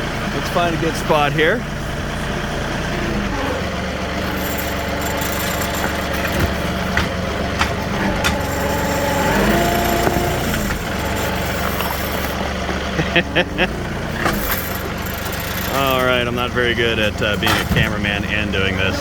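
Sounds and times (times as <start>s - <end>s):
diesel tractor running: 0.0s - 19.0s
sharp knocks and rattles: 3.6s - 18.6s.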